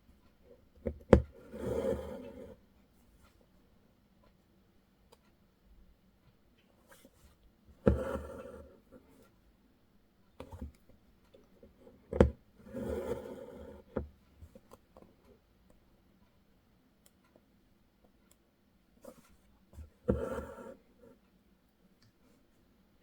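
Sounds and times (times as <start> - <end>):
needle tapping through fabric: 0.8 - 1.4, 7.8 - 8.5
thread drawn through with rasp: 1.1 - 2.6, 7.8 - 8.7, 12.2 - 14.0, 20.0 - 20.8.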